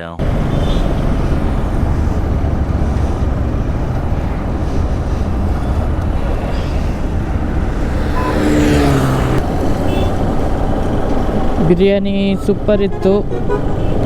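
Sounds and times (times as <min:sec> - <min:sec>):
motorcycle engine rumbling: 0:00.0 - 0:14.0
wind buffeting microphone: 0:00.2 - 0:11.7.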